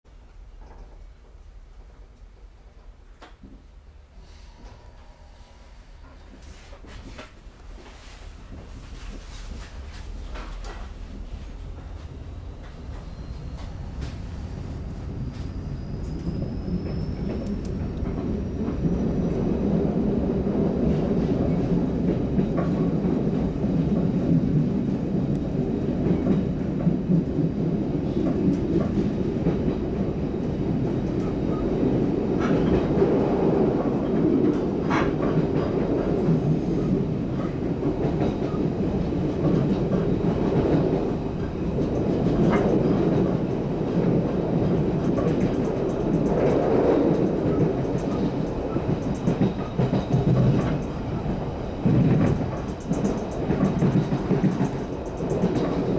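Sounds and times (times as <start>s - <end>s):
train wheels rumbling: 0.1s - 55.9s
wheels clicking on track: 37.4s - 55.9s.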